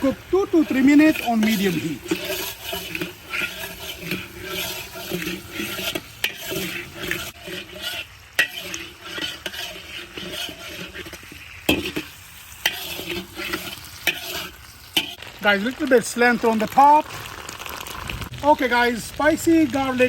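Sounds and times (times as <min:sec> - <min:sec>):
chicken sizzling in a pan: 0:00.0 - 0:20.0
utensil scraping and knocking pan: 0:00.5 - 0:15.2.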